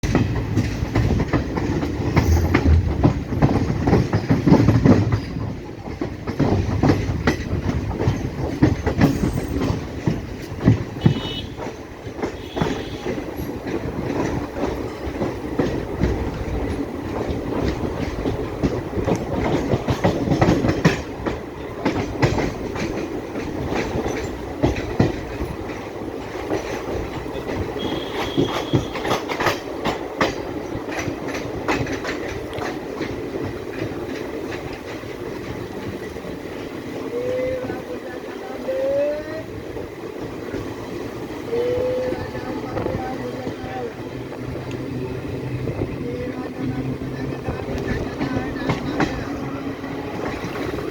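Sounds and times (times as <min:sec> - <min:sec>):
train rumble: 0:00.0 - 0:50.9
wheels clicking over rail joints: 0:00.0 - 0:50.9.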